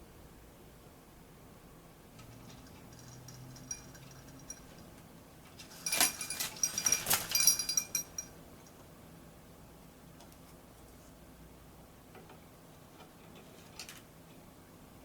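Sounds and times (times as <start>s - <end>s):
metallic rattling and clinking: 2.2s - 8.4s.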